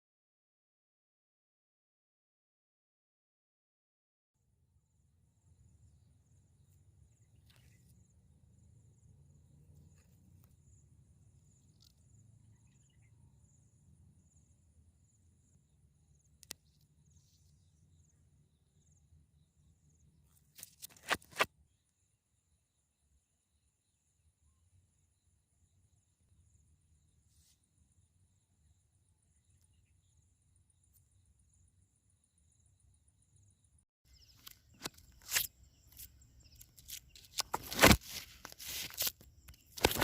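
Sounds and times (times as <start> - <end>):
insect trill: 28.3 - 40.0.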